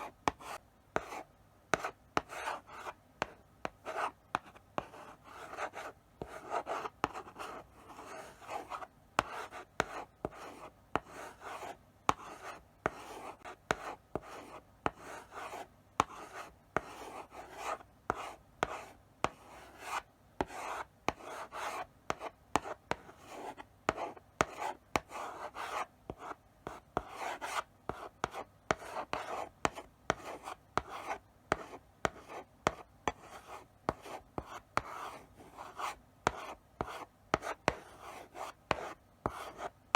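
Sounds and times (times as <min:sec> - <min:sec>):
chalk tapping on board: 0:00.2 - 0:39.8.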